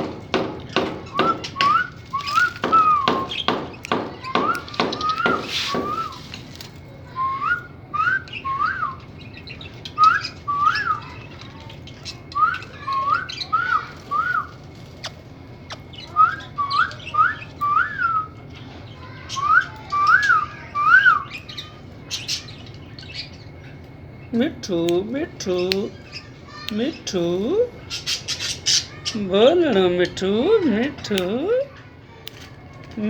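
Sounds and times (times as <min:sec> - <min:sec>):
parrot whistling: 0:01.1 - 0:03.6, 0:04.2 - 0:06.3, 0:07.0 - 0:11.3, 0:12.0 - 0:18.4, 0:19.1 - 0:23.3.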